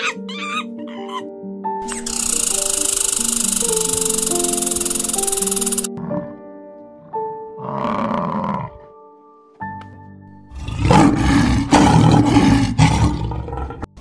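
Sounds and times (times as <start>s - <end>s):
lioness roaring: 7.6s - 8.8s, 10.5s - 13.9s.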